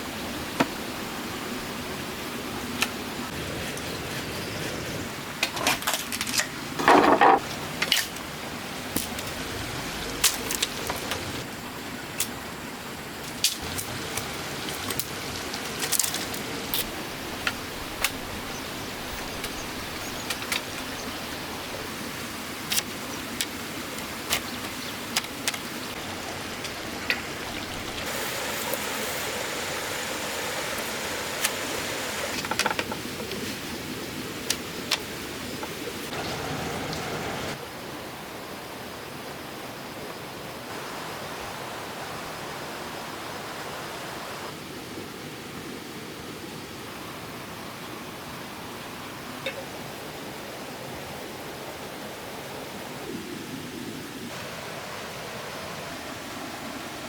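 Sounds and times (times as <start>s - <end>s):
steady background hiss: 0.0s - 57.0s.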